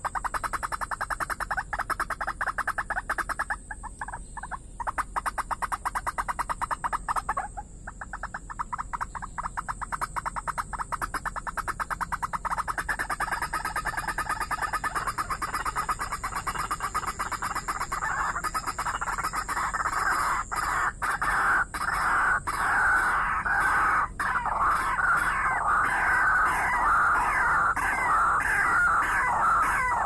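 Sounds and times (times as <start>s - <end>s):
waterbird rapid calls: 0.0s - 30.0s.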